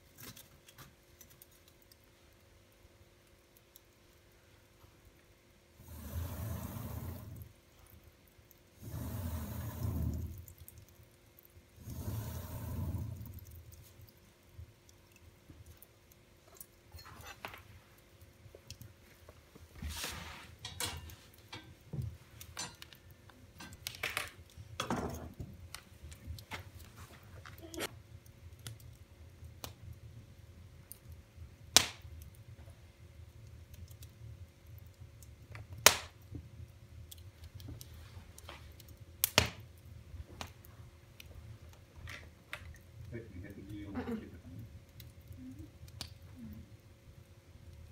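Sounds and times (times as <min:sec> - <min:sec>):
wood fire crackling: 0:00.0 - 0:47.9
loud sharp pops: 0:31.7 - 0:32.0, 0:35.8 - 0:36.2, 0:39.2 - 0:39.6.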